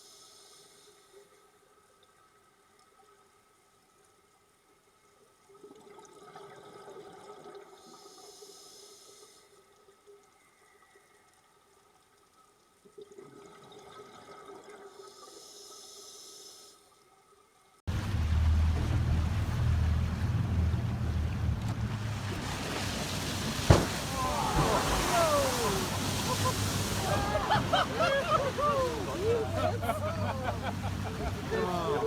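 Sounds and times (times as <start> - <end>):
watery sounds: 16.7 - 32.0
boat engine drone: 17.9 - 32.0.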